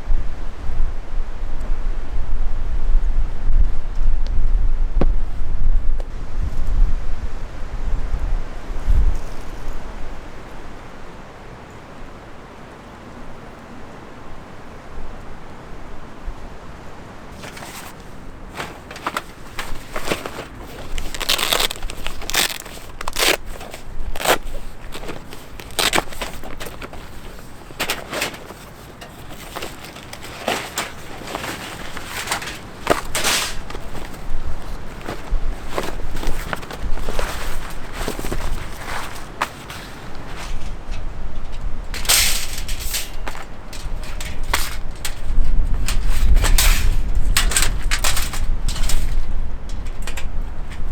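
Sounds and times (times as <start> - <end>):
outdoor background noise: 0.0 - 50.9
crunches and rustles: 17.3 - 50.9.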